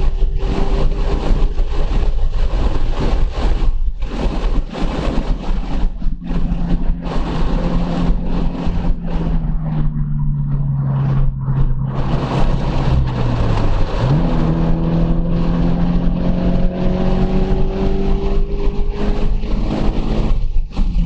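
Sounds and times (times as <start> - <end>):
car engine running hard: 0.0 - 21.0
wind and road noise: 0.0 - 21.0.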